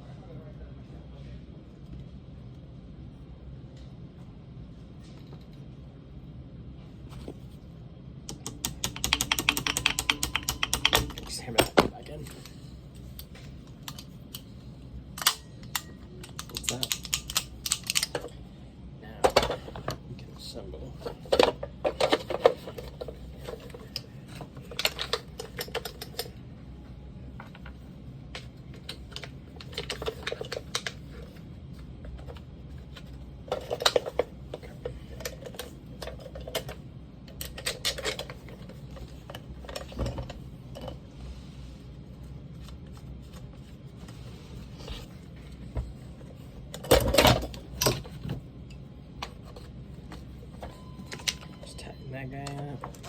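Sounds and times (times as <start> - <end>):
metal parts clicking and clattering: 21.0 - 26.3, 28.7 - 31.2, 32.2 - 41.0.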